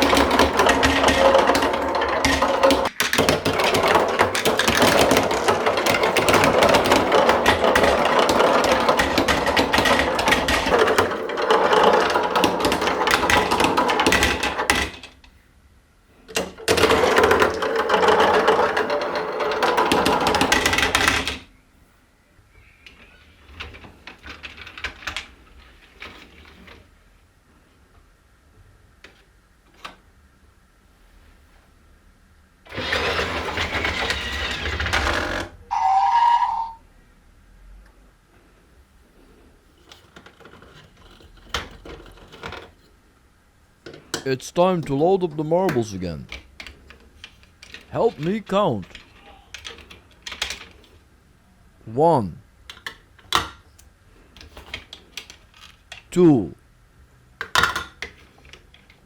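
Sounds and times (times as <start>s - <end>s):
marbles rattling down plastic run: 0.0s - 15.1s, 16.6s - 21.4s.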